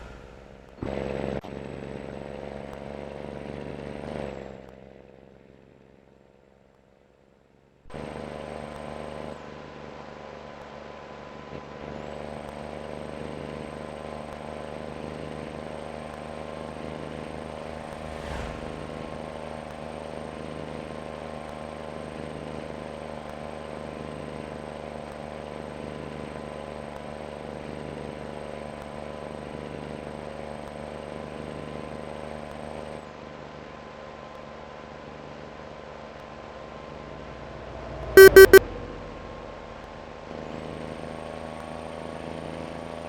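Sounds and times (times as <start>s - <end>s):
diesel engine drone: 0.0s - 4.3s, 15.4s - 20.3s, 37.1s - 40.4s
falling whoosh: 17.5s - 19.8s.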